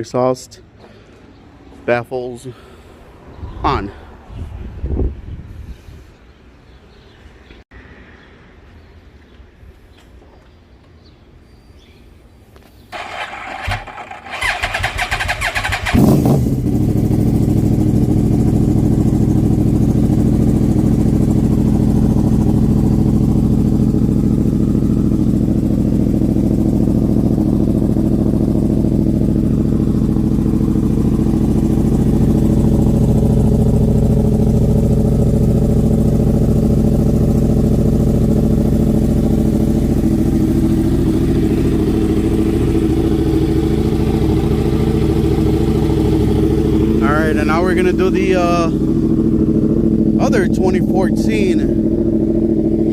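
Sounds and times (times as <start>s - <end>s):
electric starter cranking: 13.0s - 16.1s
motorcycle engine idling: 13.0s - 52.9s.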